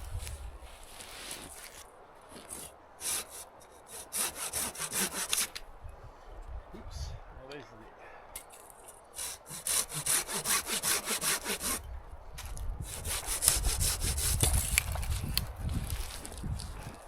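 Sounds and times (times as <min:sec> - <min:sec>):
saw cutting wood: 0:02.5 - 0:05.6, 0:09.2 - 0:11.9, 0:12.8 - 0:15.2.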